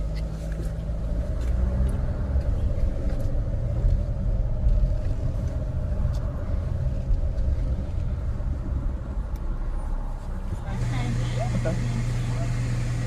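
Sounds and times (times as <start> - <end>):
car engine low rumble: 0.0 - 13.0
steady hum: 2.8 - 13.0.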